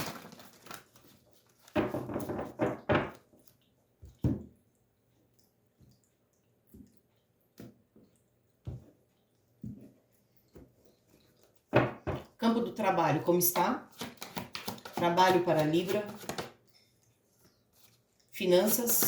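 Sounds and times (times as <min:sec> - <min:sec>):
cards tapped down: 0:14.0 - 0:15.0
cards shuffling: 0:14.0 - 0:16.5.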